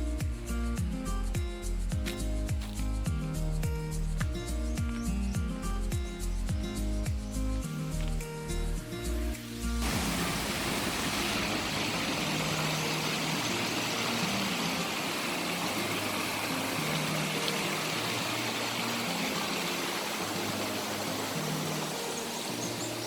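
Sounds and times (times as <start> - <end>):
low background music: 0.0 - 23.0
steady rushing noise: 9.5 - 16.8.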